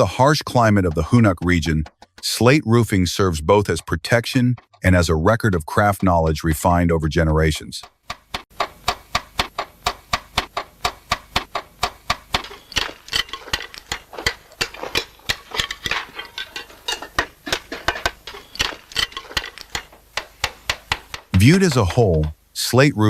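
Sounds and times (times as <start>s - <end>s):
hammer tapping slate: 0.0s - 22.4s.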